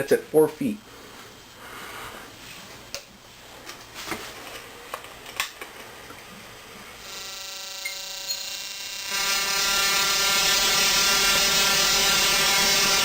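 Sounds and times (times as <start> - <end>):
tesla coil buzzing: 7.0 - 13.0.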